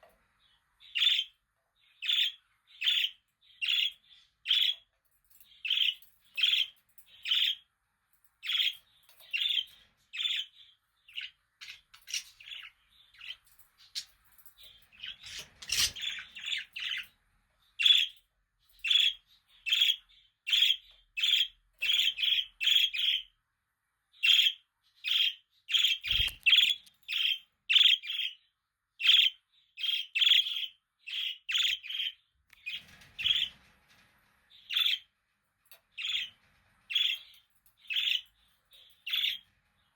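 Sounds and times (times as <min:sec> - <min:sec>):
budgerigars chirping: 0:00.9 - 0:01.3, 0:02.0 - 0:04.8, 0:08.4 - 0:14.1, 0:14.9 - 0:17.1, 0:18.8 - 0:23.3, 0:24.2 - 0:28.4, 0:29.0 - 0:33.5, 0:34.7 - 0:35.1, 0:36.0 - 0:36.3, 0:36.9 - 0:37.3, 0:37.9 - 0:38.3, 0:39.0 - 0:39.4.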